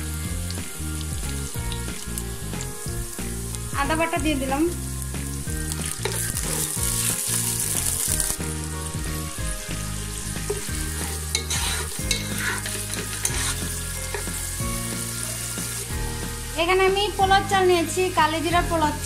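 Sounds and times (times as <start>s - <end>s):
onions sizzling in hot ghee: 0.0s - 19.0s
spatula scraping pan: 10.2s - 14.7s.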